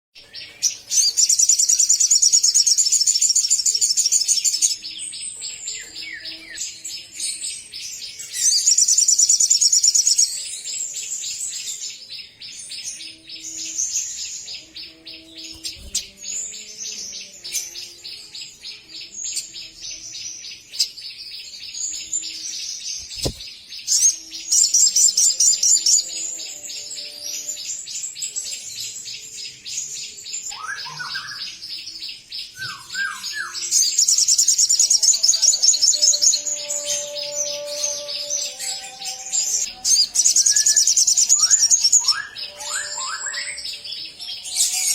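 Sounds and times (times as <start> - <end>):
brief thump: 23.0 - 23.5.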